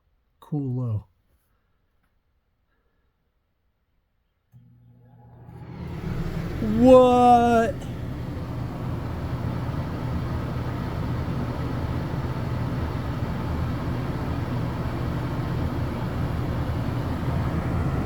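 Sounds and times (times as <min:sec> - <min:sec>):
air conditioner fan humming: 0:04.6 - 0:18.0.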